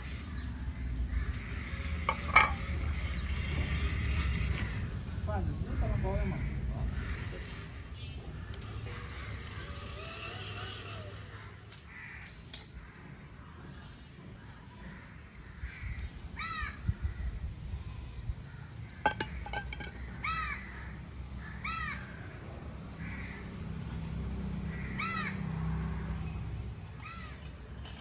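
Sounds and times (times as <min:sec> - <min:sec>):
crow cawing: 0:11.9 - 0:12.4, 0:19.1 - 0:22.2, 0:24.7 - 0:25.4.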